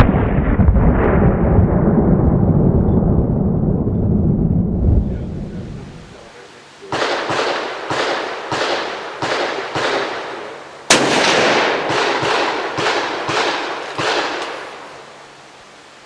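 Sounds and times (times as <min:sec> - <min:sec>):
rifle gunfire: 0:06.9 - 0:15.3.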